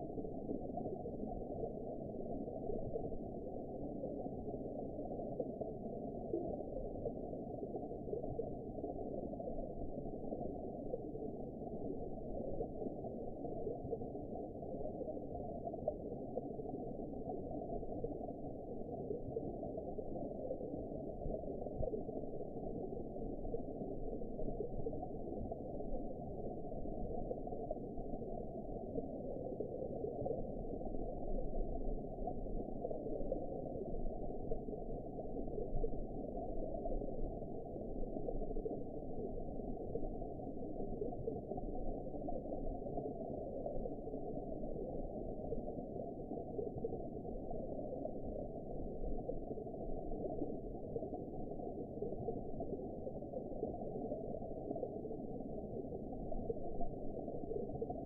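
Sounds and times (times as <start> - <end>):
muffled underwater wash: 0.0 - 58.0.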